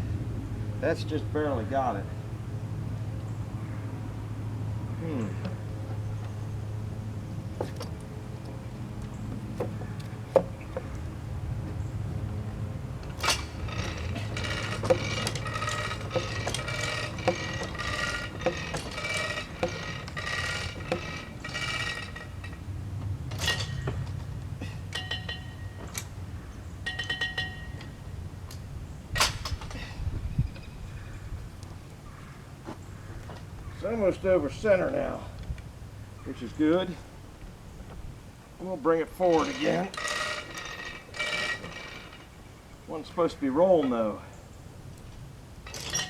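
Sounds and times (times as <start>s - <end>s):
metallic clinking and squeaking: 4.6s - 31.4s, 39.0s - 46.0s.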